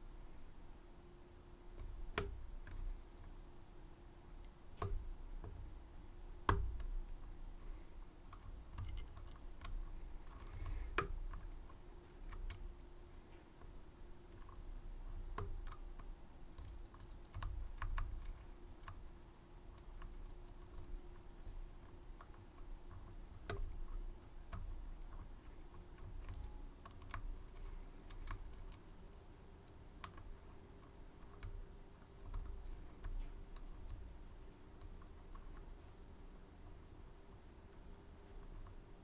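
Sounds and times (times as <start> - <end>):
lock picks clicking: 8.7 - 9.8.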